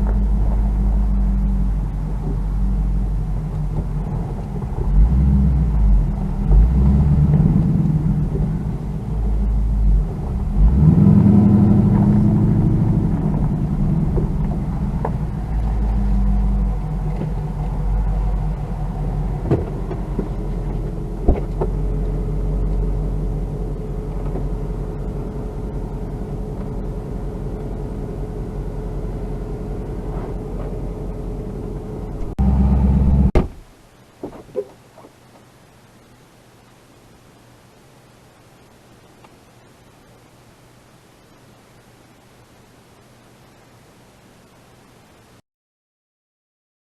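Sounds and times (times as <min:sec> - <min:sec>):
car engine running and revving: 0:00.0 - 0:33.4.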